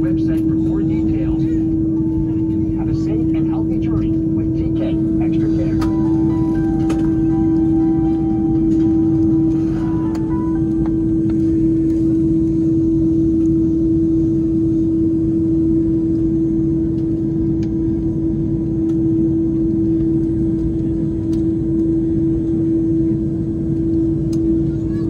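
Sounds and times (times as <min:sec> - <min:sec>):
airplane cabin drone: 0:00.0 - 0:25.0.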